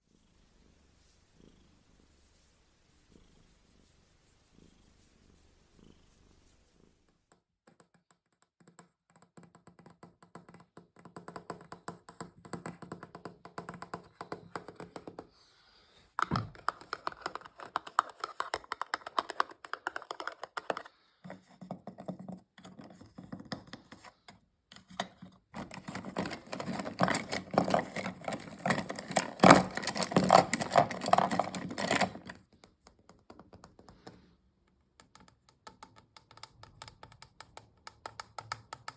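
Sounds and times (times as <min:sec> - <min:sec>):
rapid tapping on objects: 0:07.3 - 0:15.3, 0:16.2 - 0:38.9.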